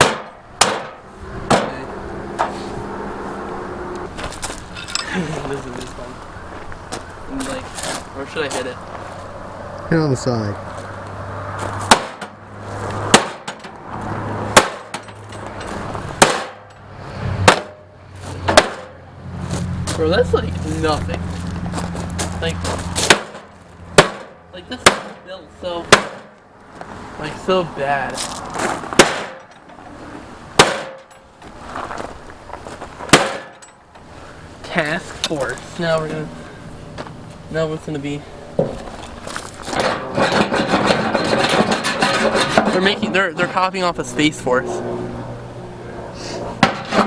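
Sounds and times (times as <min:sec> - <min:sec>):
hammer blows on metal body: 0:11.9 - 0:12.3, 0:16.2 - 0:16.7, 0:23.0 - 0:25.3, 0:25.9 - 0:26.4, 0:30.6 - 0:31.2
hammer clanging on metal: 0:11.9 - 0:12.4, 0:13.1 - 0:13.7, 0:14.5 - 0:15.6, 0:16.2 - 0:16.8, 0:23.0 - 0:25.3, 0:25.9 - 0:26.4, 0:30.6 - 0:31.3, 0:33.1 - 0:33.8, 0:39.7 - 0:43.7.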